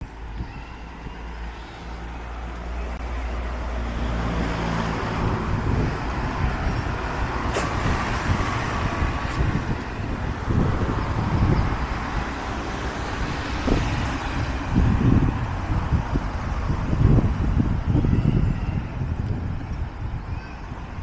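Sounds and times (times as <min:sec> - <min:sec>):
road noise: 0:00.0 - 0:21.0.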